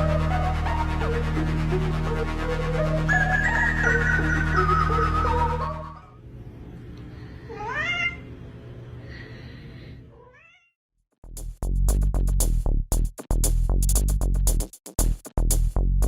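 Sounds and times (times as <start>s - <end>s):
electronic music with steady beat: 0.0s - 6.0s, 11.2s - 16.0s
background music: 0.0s - 6.2s
cat meowing: 7.5s - 8.3s, 10.2s - 10.8s.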